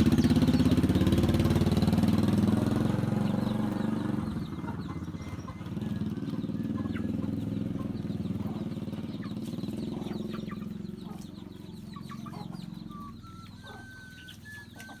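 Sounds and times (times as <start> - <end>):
chickens clucking: 0.0 - 15.0
small engine humming: 0.0 - 15.0.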